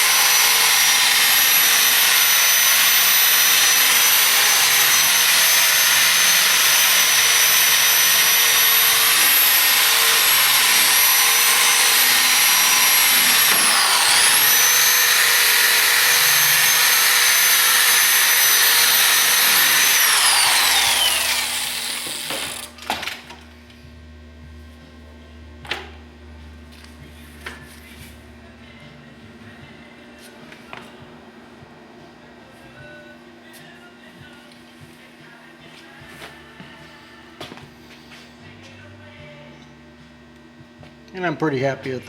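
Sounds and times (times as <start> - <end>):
power tool buffing wheel whine: 0.0 - 22.8.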